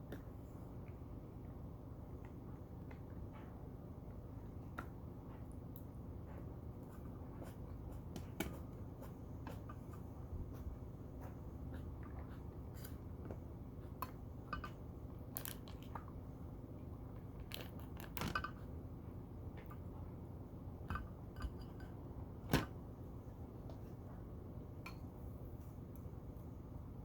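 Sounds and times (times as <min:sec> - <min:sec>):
steady low hum: 0:00.0 - 0:27.0
utensil clicking on dish: 0:14.0 - 0:14.8.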